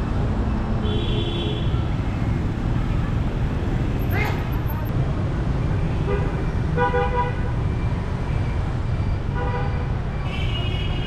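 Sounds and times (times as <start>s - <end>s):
low traffic rumble: 0.0s - 11.0s
vehicle horns honking: 9.4s - 11.0s.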